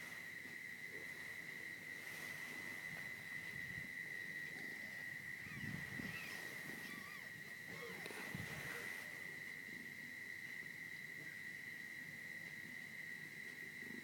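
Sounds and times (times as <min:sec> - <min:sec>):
faint cat mews: 0:05.4 - 0:09.1.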